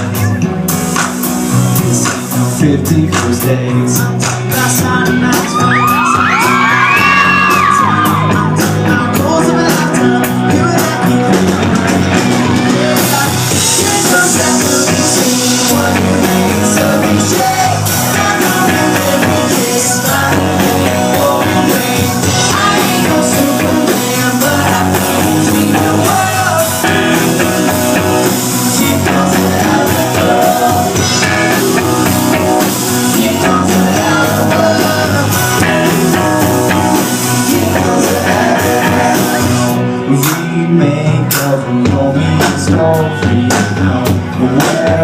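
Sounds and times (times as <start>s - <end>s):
rock band playing: 0.0s - 45.0s
person singing: 1.5s - 45.0s.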